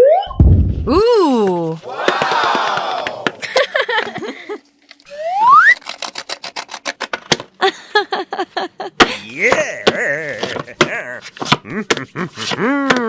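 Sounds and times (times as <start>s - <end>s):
rising whistle-like glide: 5.2s - 5.8s.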